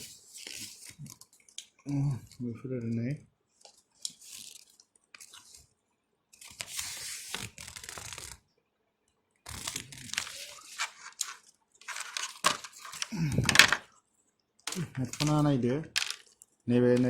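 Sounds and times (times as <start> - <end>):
packaging crinkling and rustling: 3.7 - 5.6, 6.4 - 8.4, 9.5 - 13.9, 14.7 - 16.6.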